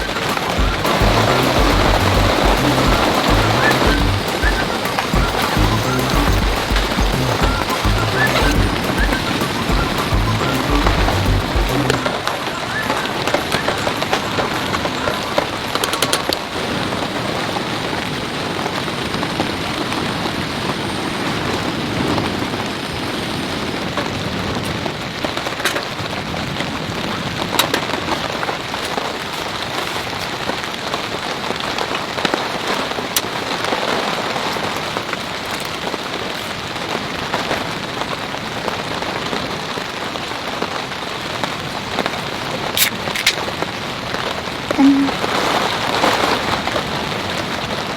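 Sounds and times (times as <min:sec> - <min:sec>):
sharp raindrop hits: 0:00.0 - 0:12.2
heavy rain falling: 0:00.0 - 0:47.9.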